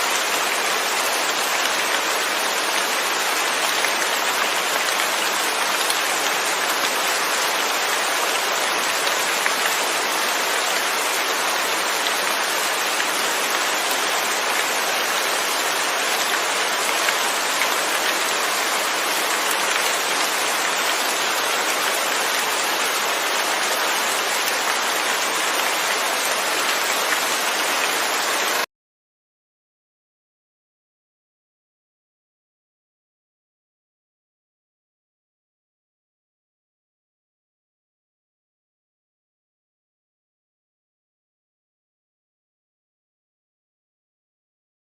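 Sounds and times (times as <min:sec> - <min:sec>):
steady rain falling: 0:00.0 - 0:28.7.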